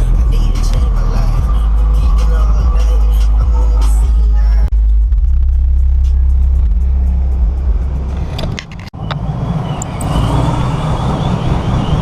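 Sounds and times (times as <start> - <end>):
heavy low bass: 0.0 - 8.9
vehicle engines rumbling: 0.0 - 12.0.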